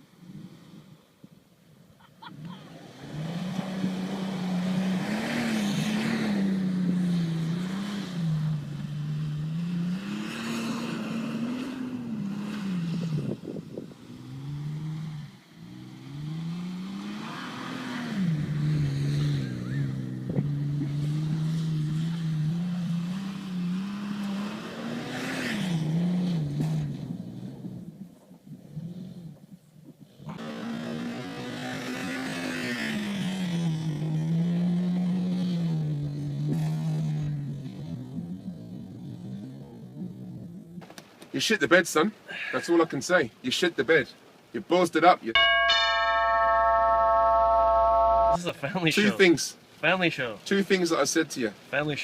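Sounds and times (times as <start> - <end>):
off-road vehicle engine revving: 2.3 - 40.8.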